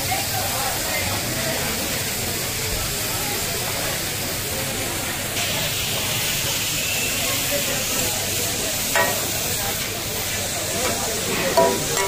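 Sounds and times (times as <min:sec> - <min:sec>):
chicken sizzling on a griddle: 0:00.0 - 0:12.0.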